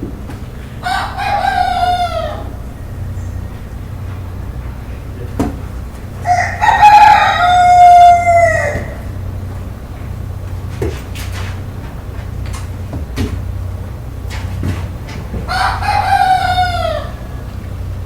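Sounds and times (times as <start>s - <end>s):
steady low hum: 0.0s - 18.0s
rooster crowing: 0.8s - 3.4s, 6.2s - 9.4s, 15.4s - 18.0s.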